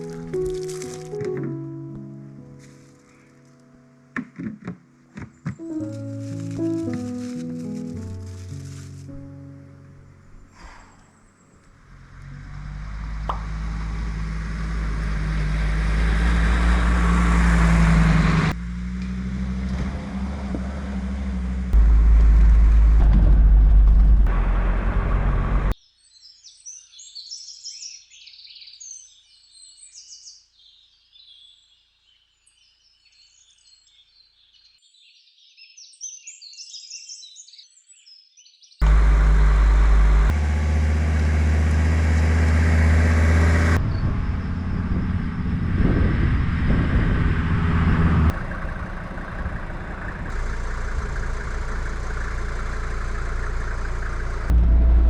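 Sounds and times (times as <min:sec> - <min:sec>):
diesel engine running: 0:11.6 - 0:25.7, 0:38.8 - 0:55.0
birds singing and chirping: 0:25.9 - 0:38.8.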